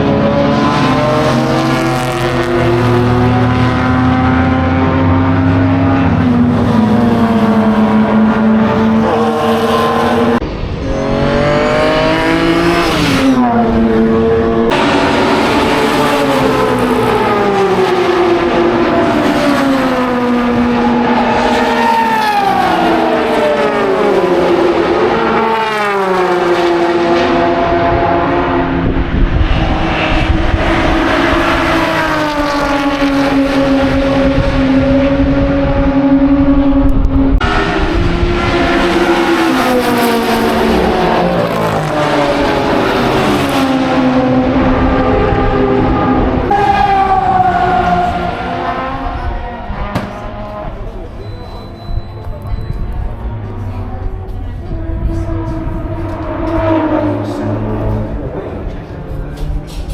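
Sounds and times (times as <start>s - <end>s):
racing car engines accelerating: 0.0s - 59.9s.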